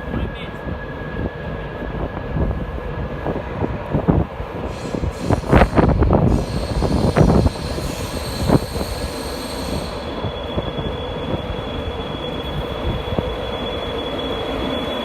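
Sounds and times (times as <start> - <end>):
high-pitched train whine: 0.0 - 15.0
train wheels rumbling: 0.0 - 15.0.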